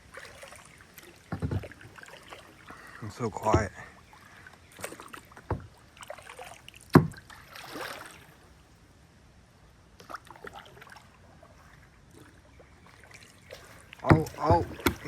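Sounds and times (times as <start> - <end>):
paddle swishing through water: 0.0 - 8.6, 9.9 - 15.0
paddle knocks: 1.2 - 3.8, 4.8 - 5.8, 6.9 - 7.2, 14.0 - 15.0.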